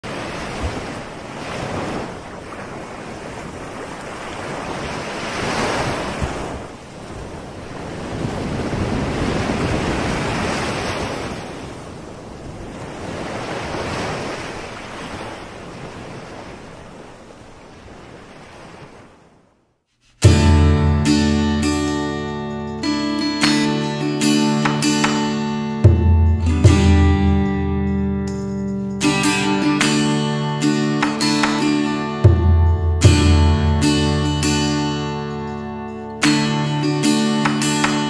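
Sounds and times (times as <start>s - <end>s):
waves washing in and out: 0.0s - 38.0s
acoustic guitar music: 20.2s - 38.0s.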